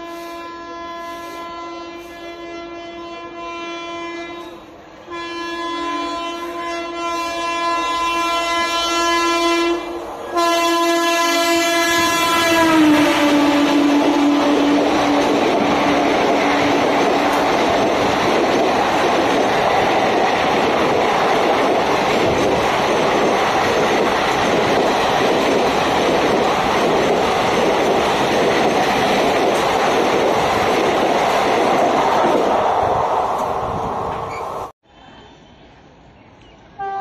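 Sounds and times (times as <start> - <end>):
train horn: 0.0 - 15.4, 36.8 - 37.0
train rushing past: 0.0 - 34.7.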